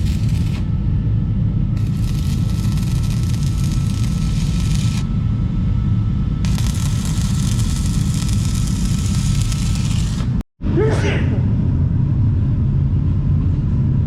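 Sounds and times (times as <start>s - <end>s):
forge fire roaring: 0.0s - 0.7s, 1.8s - 5.1s, 6.4s - 10.4s.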